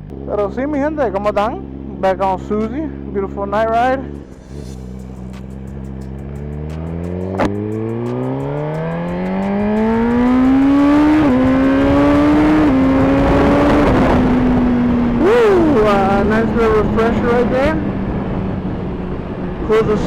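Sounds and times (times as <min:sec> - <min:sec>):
motorcycle engine accelerating: 0:00.0 - 0:20.0
rushing wind noise: 0:04.2 - 0:20.0.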